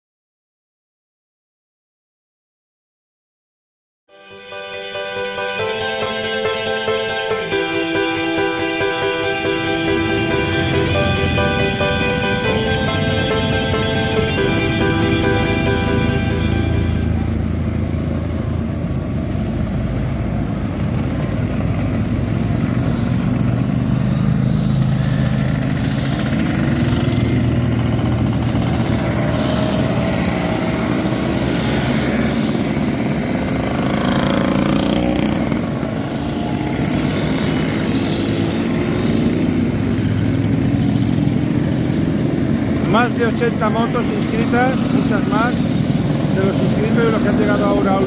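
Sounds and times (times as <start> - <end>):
scooter and motorcycle engines revving: 9.9 - 48.0.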